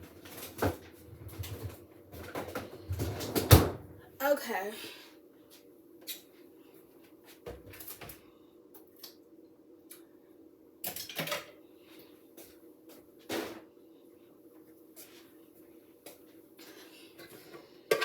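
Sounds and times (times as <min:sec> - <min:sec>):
kitchen knocks and clatters: 0:10.8 - 0:11.6, 0:17.2 - 0:18.0.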